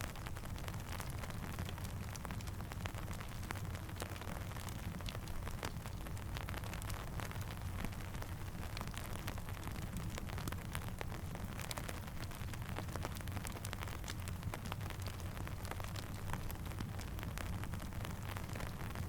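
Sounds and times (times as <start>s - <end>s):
steady rain: 0.0s - 19.0s
campfire crackling and popping: 0.1s - 19.0s.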